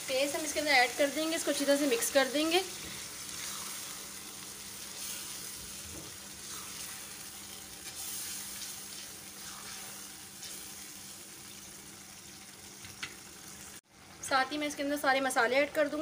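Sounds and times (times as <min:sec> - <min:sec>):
meat sizzling and bubbling in a pot: 0:00.0 - 0:16.0
spatula stirring: 0:04.8 - 0:11.0.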